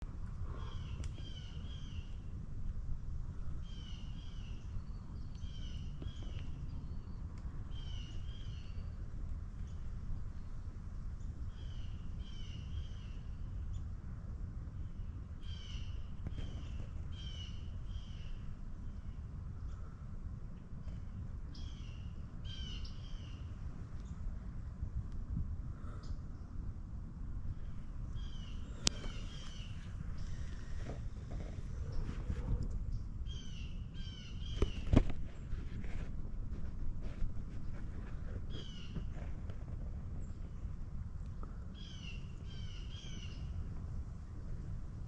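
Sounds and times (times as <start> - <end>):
steady low rumble: 0.0 - 45.0
birds calling: 27.5 - 36.2, 37.0 - 40.5.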